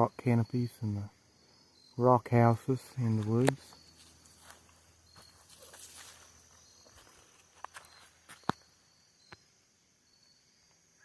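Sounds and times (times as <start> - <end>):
insect trill: 0.0 - 11.0
footsteps crunching on trail: 3.1 - 8.7.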